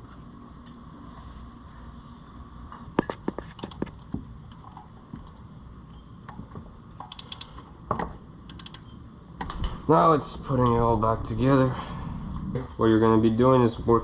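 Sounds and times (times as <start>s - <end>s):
metallic clicks of hand tools: 7.0s - 7.6s, 8.5s - 8.9s.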